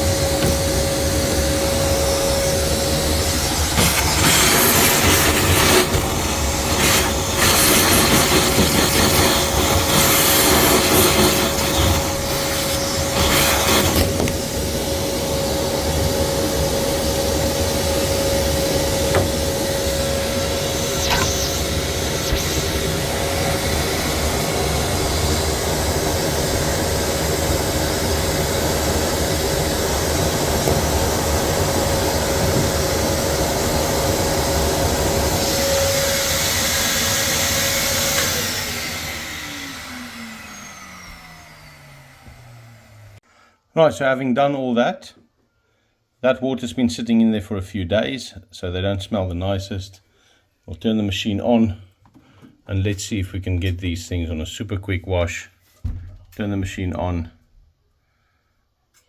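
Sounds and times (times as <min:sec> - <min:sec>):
wet-and-dry vacuum whining: 0:00.0 - 0:43.2.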